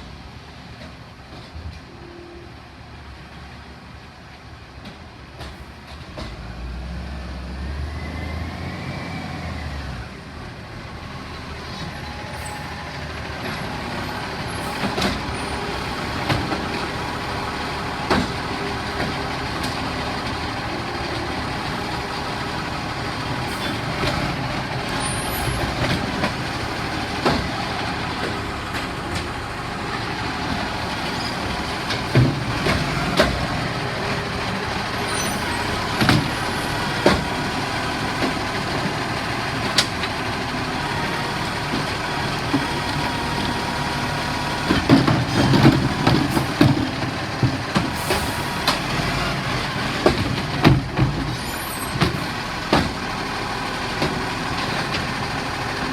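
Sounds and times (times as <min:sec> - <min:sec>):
garbage truck running: 0:03.8 - 0:55.9
bins clunking and knocking: 0:30.4 - 0:33.6, 0:44.6 - 0:49.0, 0:49.9 - 0:53.0.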